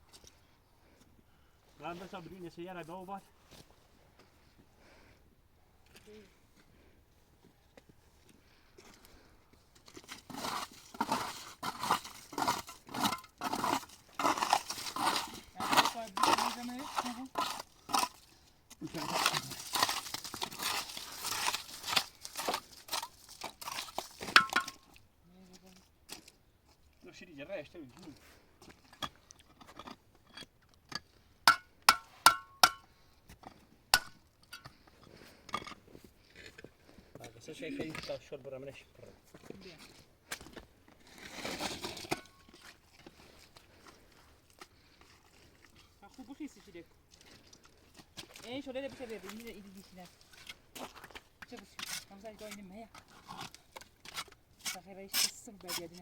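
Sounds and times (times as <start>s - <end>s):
rough crunching scraping strokes: 8.0s - 25.0s, 26.1s - 56.0s.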